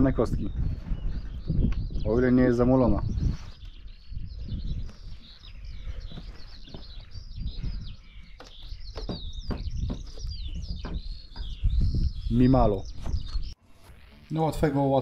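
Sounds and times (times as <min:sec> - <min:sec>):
small birds chirping: 0:00.0 - 0:15.0
sharp knocks: 0:08.4 - 0:11.6.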